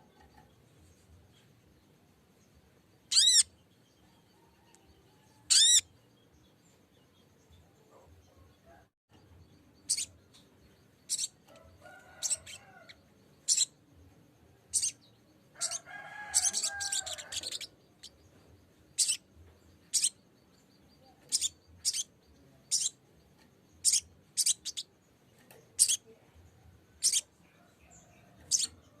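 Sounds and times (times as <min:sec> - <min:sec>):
bird sharp chip calls: 0:05.5 - 0:05.8.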